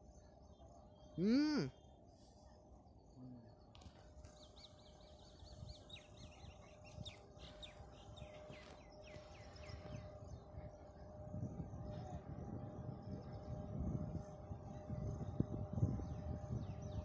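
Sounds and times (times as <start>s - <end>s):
bird singing: 0.0s - 17.0s.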